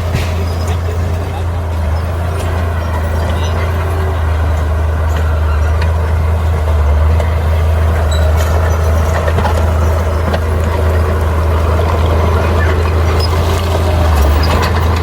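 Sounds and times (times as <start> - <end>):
faint clanks: 0.0 - 4.0
heavy diesel machinery engine hum: 0.0 - 15.0.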